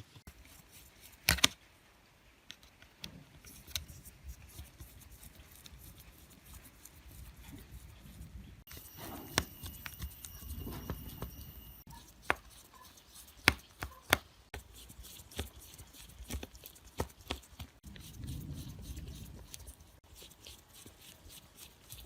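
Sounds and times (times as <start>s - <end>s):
faint high whine: 8.7s - 11.9s.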